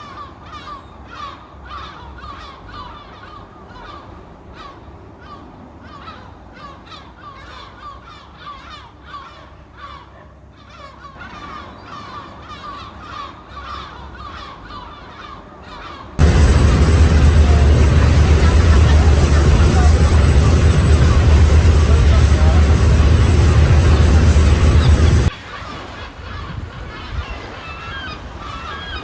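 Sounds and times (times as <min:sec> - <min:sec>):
seagulls calling: 0:16.2 - 0:25.3.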